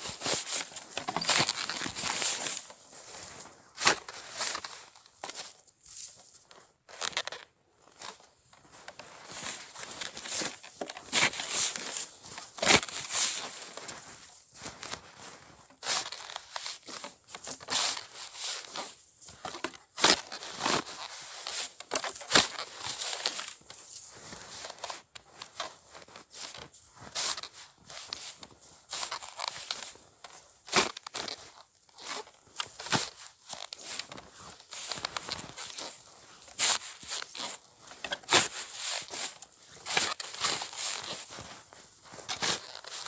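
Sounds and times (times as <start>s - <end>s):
snow crunching and scraping: 0.0s - 6.4s, 7.9s - 43.0s.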